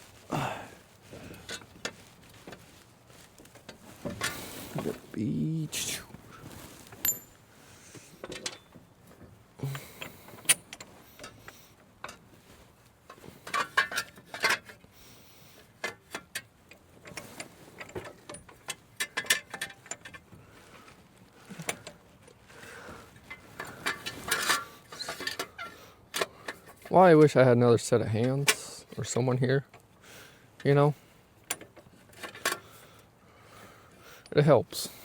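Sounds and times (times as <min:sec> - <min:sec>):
metal parts clinking and rattling: 0:06.9 - 0:07.4, 0:13.4 - 0:14.7.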